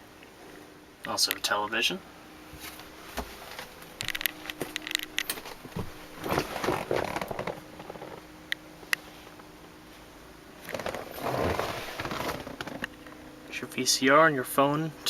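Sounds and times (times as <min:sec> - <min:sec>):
faint steady hum: 0:00.0 - 0:15.0
rustling and scraping: 0:02.5 - 0:08.3, 0:09.0 - 0:13.1.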